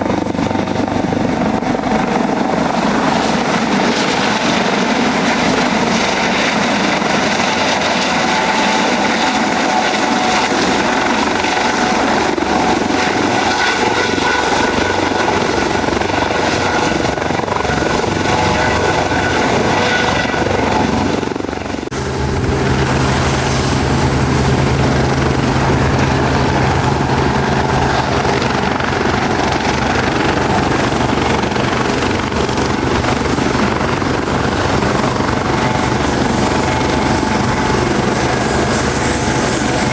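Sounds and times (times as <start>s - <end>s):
helicopter rotor and engine: 0.0s - 39.9s
high whine: 11.0s - 28.9s.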